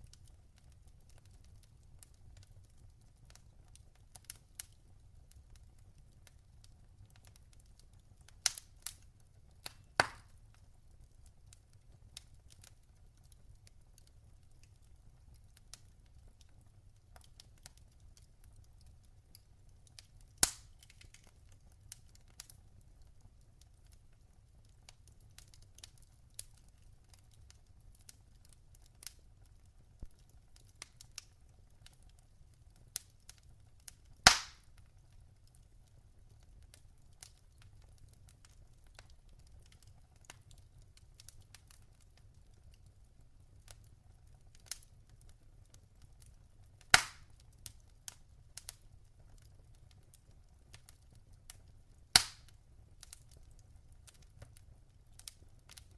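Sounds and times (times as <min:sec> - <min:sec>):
low steady fire rumble: 0:00.0 - 0:55.9
logs popping and cracking: 0:09.7 - 0:10.4, 0:20.4 - 0:21.3, 0:34.2 - 0:34.7, 0:46.9 - 0:47.8, 0:52.1 - 0:53.3.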